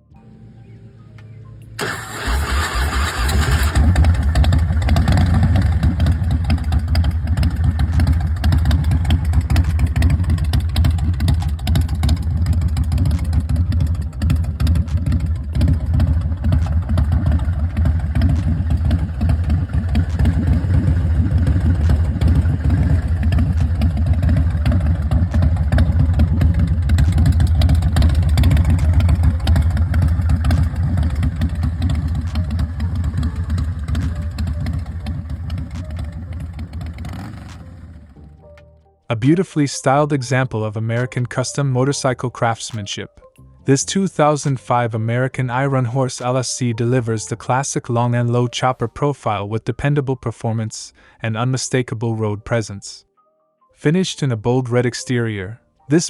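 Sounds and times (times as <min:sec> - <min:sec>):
motorcycle engine running: 0:01.8 - 0:38.5.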